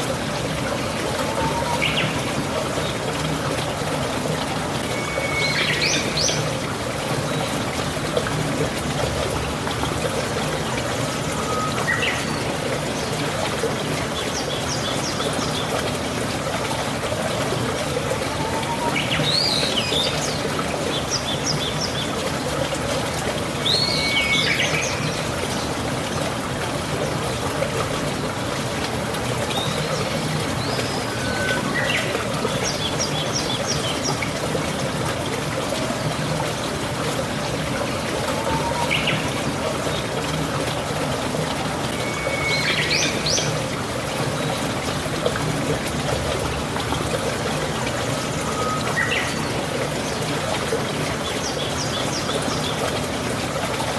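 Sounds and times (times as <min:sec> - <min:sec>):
steady rain: 0:00.0 - 0:53.9
water trickling and pouring: 0:00.0 - 0:53.9.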